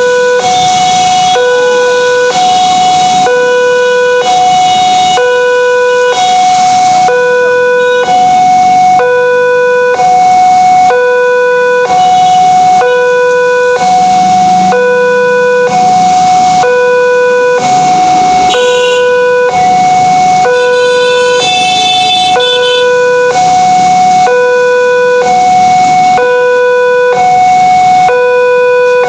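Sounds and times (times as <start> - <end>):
level crossing warning alarm: 0.0 - 29.0.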